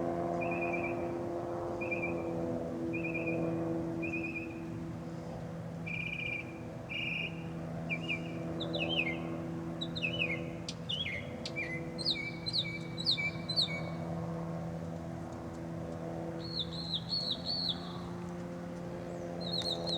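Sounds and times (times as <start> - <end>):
small birds chirping: 9.8 - 14.0, 16.4 - 18.1, 19.1 - 19.9.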